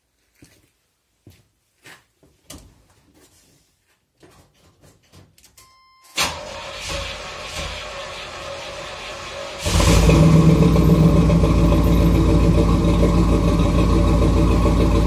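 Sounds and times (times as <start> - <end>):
engine starting and idling: 6.2 - 15.0.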